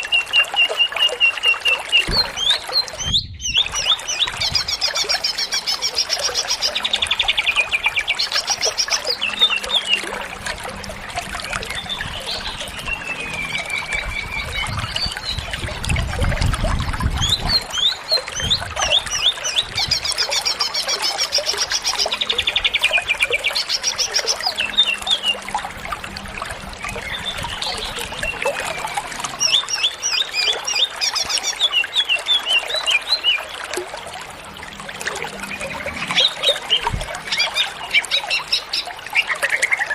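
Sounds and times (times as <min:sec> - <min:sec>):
bird singing trills and whistles: 0:00.0 - 0:10.2, 0:17.0 - 0:25.4.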